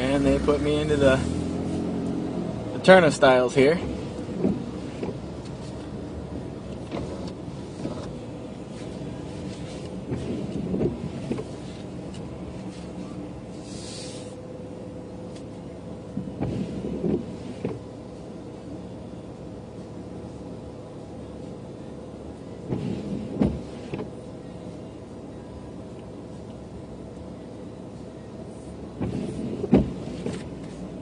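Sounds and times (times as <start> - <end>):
car engine hum inside cabin: 0.0 - 31.0
brief hiss: 13.6 - 14.4.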